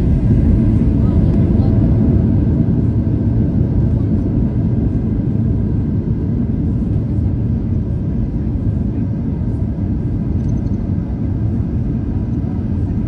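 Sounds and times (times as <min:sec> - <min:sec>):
airliner engine rumble: 0:00.0 - 0:13.0
faint steady whine: 0:06.4 - 0:13.0.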